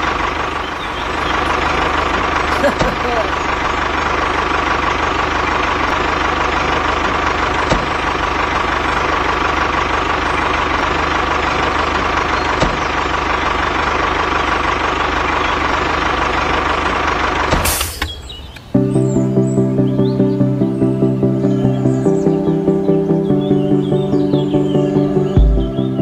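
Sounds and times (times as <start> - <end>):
tractor motor humming: 0.0 - 26.0
short clicks: 17.6 - 18.7.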